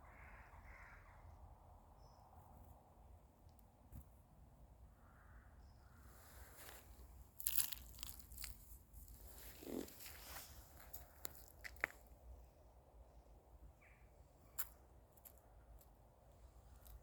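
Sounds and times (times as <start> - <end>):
crunching and crackling: 6.6 - 12.1.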